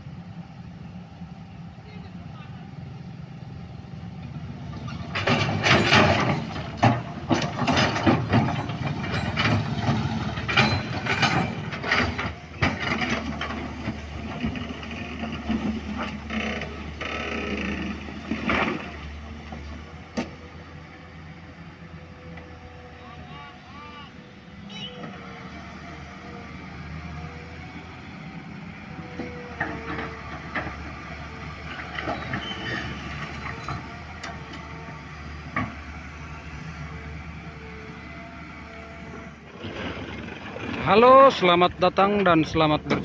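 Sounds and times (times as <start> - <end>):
metallic clanks and knocks: 4.8 - 16.8.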